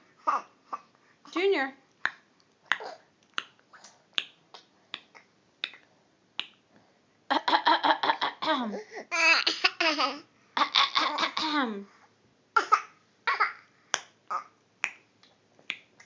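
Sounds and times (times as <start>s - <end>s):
baby laughing: 9.1s - 11.4s.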